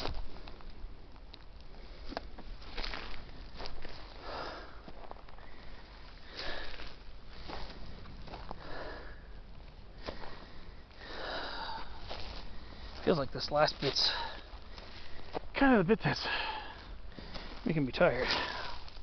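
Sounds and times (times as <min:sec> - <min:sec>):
footsteps on dry ground: 0:00.0 - 0:19.0
person breathing hard: 0:04.1 - 0:13.0, 0:16.2 - 0:17.6.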